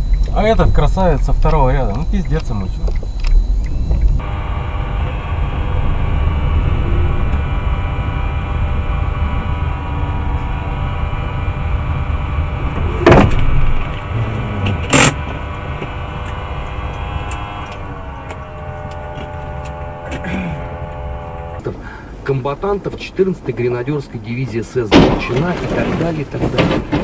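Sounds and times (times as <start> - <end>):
car road rumble and engine hum: 0.0 - 27.0
loud collision bangs: 24.9 - 27.0.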